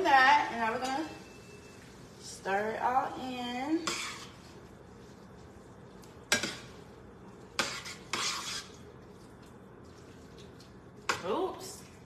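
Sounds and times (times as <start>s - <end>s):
utensil scraping pot: 1.7s - 5.6s, 6.3s - 9.0s.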